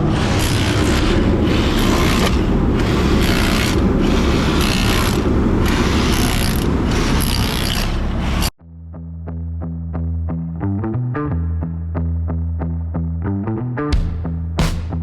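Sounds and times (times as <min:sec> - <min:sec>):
generator and heater drone: 0:00.0 - 0:08.6
scraping frozen mud: 0:00.2 - 0:08.5.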